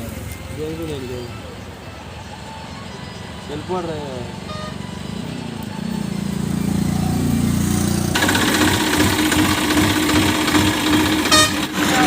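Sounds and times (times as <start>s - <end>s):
tractor diesel engine rattling: 7.7s - 12.0s.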